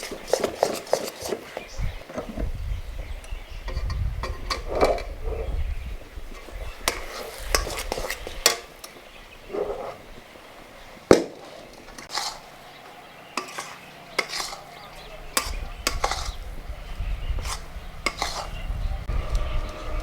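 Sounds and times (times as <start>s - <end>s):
metal utensils clinking on pots: 0.0s - 1.7s, 6.3s - 9.2s, 11.4s - 18.7s
low rumble: 16.4s - 20.0s.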